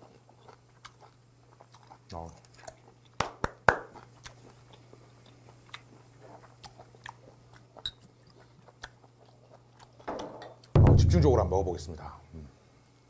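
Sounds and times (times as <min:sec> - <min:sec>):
chewing food: 0:00.0 - 0:10.7
low steady hum: 0:06.6 - 0:13.0.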